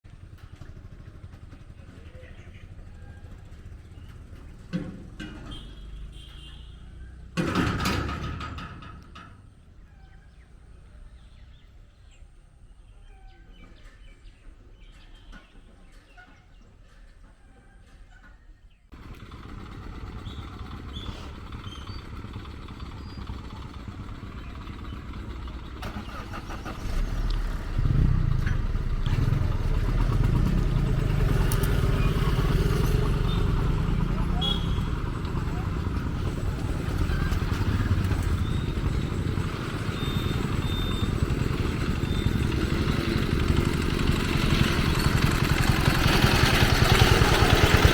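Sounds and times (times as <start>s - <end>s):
motor vehicle engines din: 0.0s - 47.9s
heavy low rumble: 26.9s - 47.9s.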